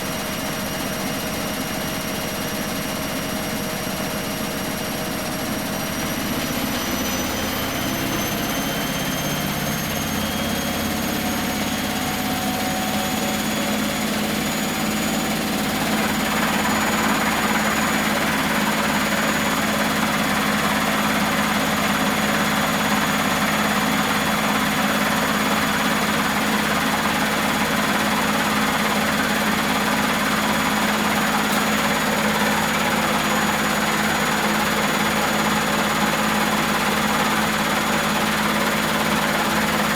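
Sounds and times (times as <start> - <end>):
washing machine drum spinning: 15.3 - 39.9.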